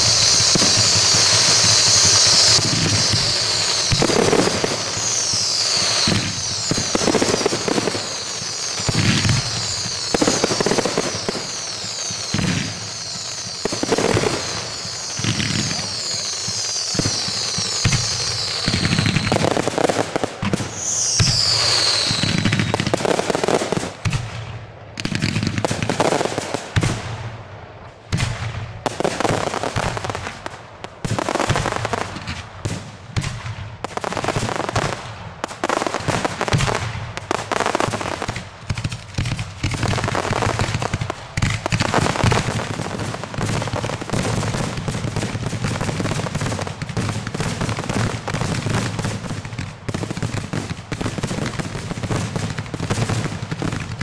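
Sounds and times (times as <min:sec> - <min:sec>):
firework shells bursting: 0:00.0 - 0:23.0
falling firework whistle: 0:00.0 - 0:24.3.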